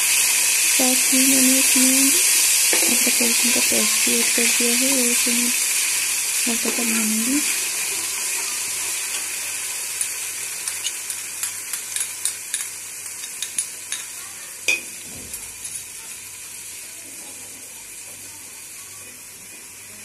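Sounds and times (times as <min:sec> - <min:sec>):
onions sizzling in hot oil: 0:00.0 - 0:20.0
metal spoon clicking on pot: 0:10.0 - 0:14.1.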